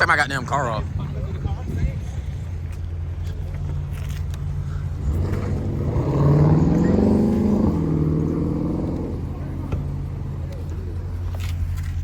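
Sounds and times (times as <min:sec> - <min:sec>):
car engine revving: 0:03.6 - 0:11.7.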